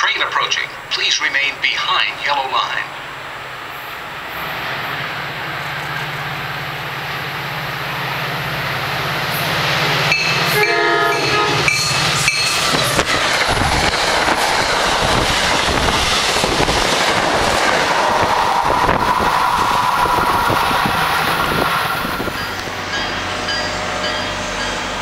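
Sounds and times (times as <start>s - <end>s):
train rushing by: 0.0s - 25.0s
train horn blasts: 10.5s - 11.8s.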